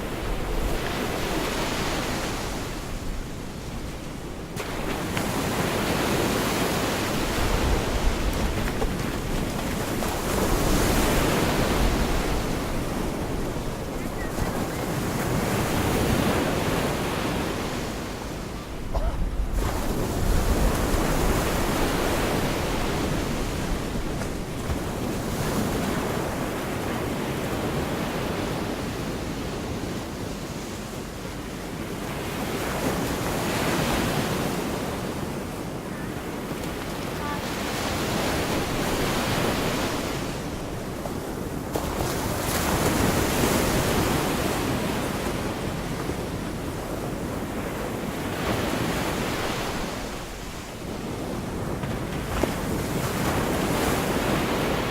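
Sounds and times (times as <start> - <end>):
wind rumbling on microphone: 0.0 - 30.9
sea waves breaking on beach: 0.0 - 54.9.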